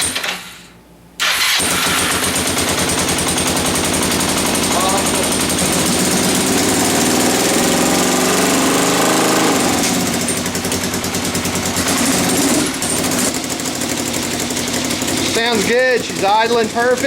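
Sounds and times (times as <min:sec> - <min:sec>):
engine revving and idling: 0:01.4 - 0:17.0.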